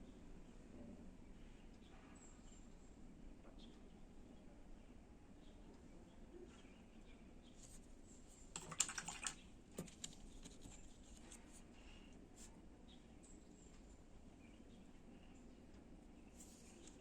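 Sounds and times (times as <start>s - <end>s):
small clicks and taps: 8.6s - 11.3s.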